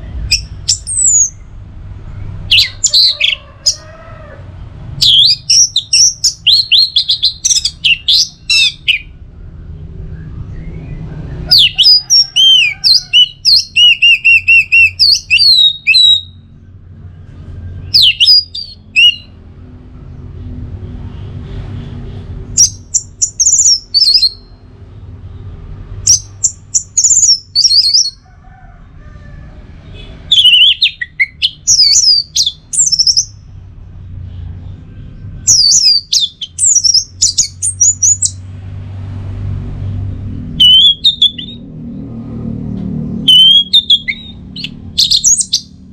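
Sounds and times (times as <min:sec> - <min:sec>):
thrush singing whistled phrases: 0:05.0 - 0:09.2, 0:10.0 - 0:16.4, 0:17.8 - 0:19.4, 0:22.6 - 0:24.5, 0:26.1 - 0:28.2, 0:30.2 - 0:33.4, 0:35.5 - 0:38.4, 0:40.6 - 0:41.6, 0:43.3 - 0:45.7.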